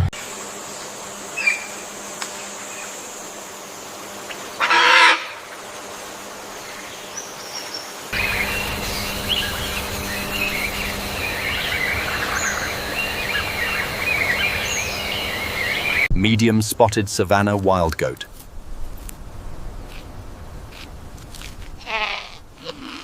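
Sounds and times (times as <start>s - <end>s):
outdoor background: 0.0s - 23.0s
loud animal call: 4.6s - 5.5s, 21.8s - 23.0s
bird chirps: 7.0s - 16.1s.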